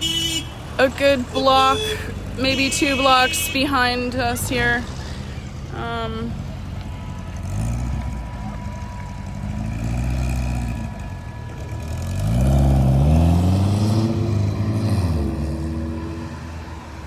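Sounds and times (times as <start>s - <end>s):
cars and trucks passing: 0.0s - 17.0s
vehicle accelerating past: 7.1s - 16.8s.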